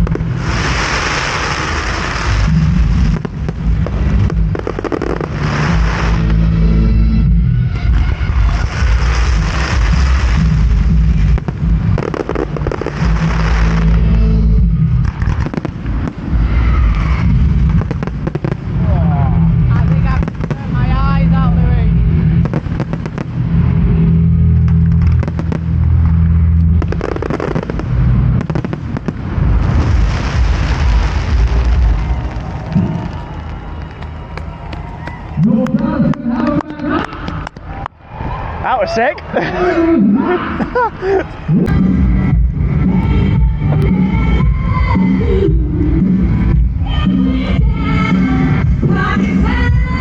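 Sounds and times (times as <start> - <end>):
fireworks cracking: 0.0 - 6.8, 7.8 - 38.0
steady low rumble: 0.0 - 50.0.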